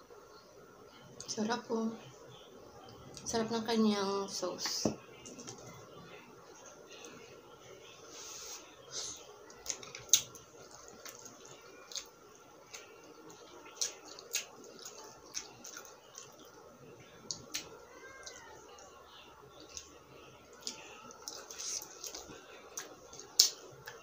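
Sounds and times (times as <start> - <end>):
faint steady hum: 0.0 - 24.0
wet chewing: 9.5 - 24.0.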